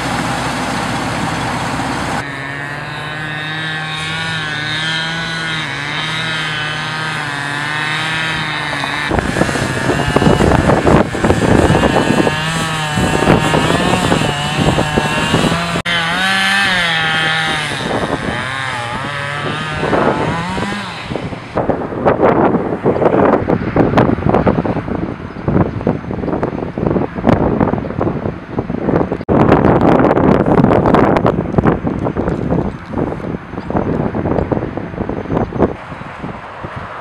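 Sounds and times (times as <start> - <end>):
chainsaw running: 0.0 - 21.6
wind buffeting microphone: 4.0 - 37.0.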